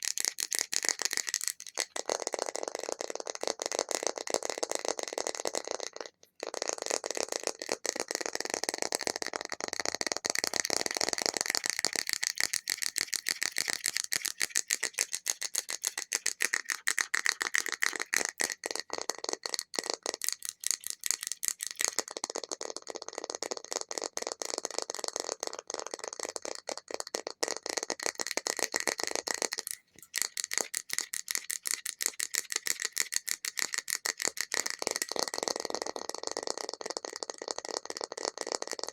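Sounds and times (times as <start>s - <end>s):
fast finger tapping: 0.0s - 38.9s.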